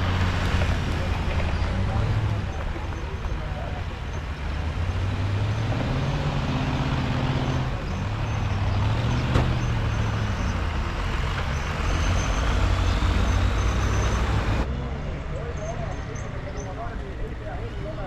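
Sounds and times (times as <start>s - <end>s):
diesel engine revving: 0.0s - 18.0s.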